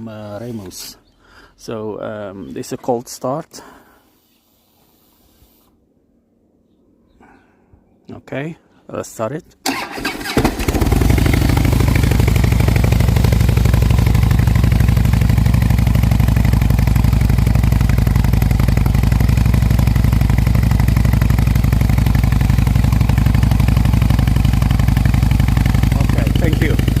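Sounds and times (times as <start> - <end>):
motorcycle engine idling: 10.2 - 27.0.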